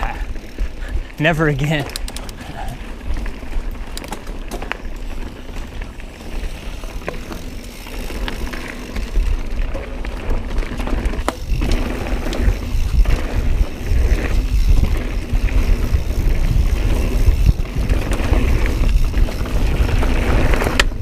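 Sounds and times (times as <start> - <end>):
bike rattling and clicking: 0.0 - 21.0
bike tyres rolling over dirt: 0.0 - 21.0
wind rumble on microphone: 8.9 - 21.0.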